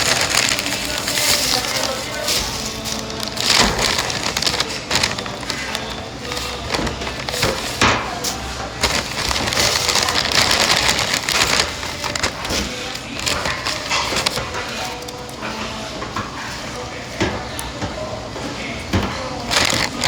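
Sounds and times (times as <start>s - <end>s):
crunching food: 0.0s - 15.2s, 19.4s - 20.0s.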